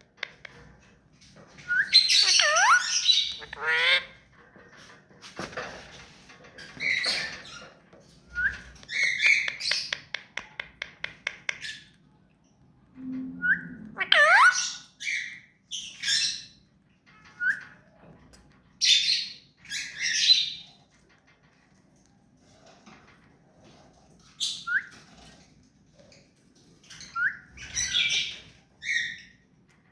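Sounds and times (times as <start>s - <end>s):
parakeet squawks and chirps: 1.6s - 4.3s, 13.4s - 17.8s, 18.8s - 20.7s, 26.9s - 29.4s.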